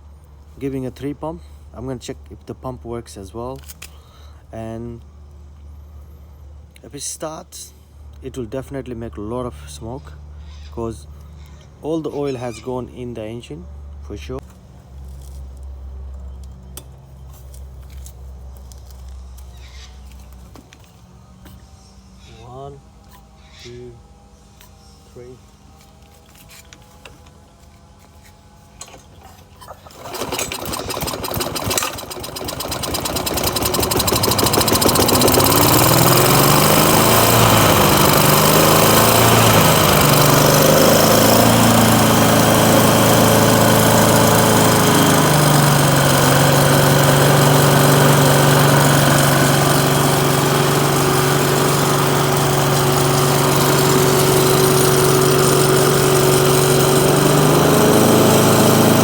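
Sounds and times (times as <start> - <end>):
lawn mower engine starting and running: 28.0 - 59.0.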